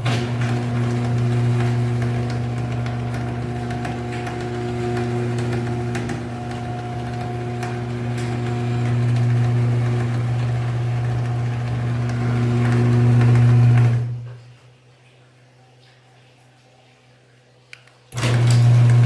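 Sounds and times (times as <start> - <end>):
garage door opener motor humming: 0.0 - 14.4, 18.1 - 19.0.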